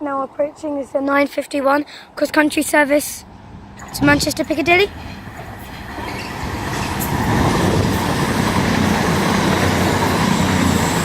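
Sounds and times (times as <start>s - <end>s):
diesel train engine drone: 3.0s - 11.0s
wheel and rail noise: 3.0s - 11.0s.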